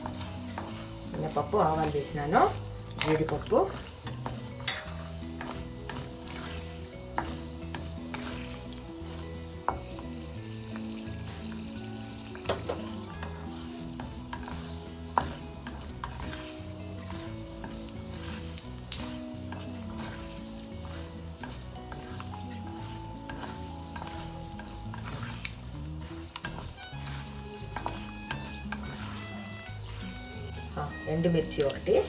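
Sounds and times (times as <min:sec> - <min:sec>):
ladle stirring: 0:00.0 - 0:32.0
oil sizzling in a pan: 0:00.0 - 0:32.0.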